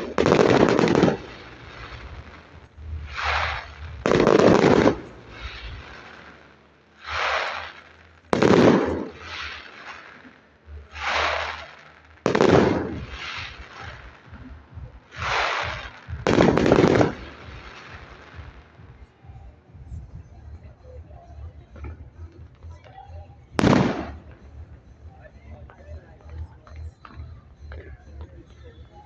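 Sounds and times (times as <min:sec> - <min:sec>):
fireworks loud bang: 0:00.0 - 0:06.4, 0:07.0 - 0:18.9, 0:23.6 - 0:24.5
fireworks sharp report: 0:00.0 - 0:29.0.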